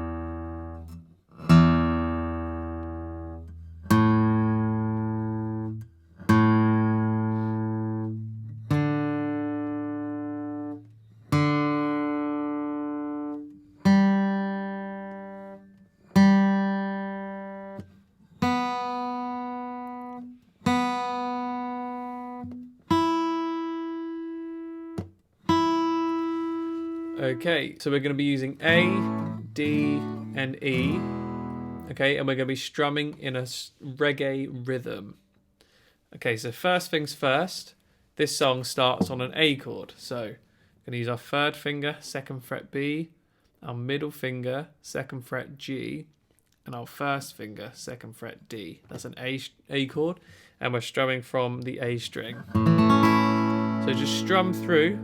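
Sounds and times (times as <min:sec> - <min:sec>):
guitar strings plucked: 0:00.0 - 0:15.6, 0:28.6 - 0:31.9, 0:52.4 - 0:55.0.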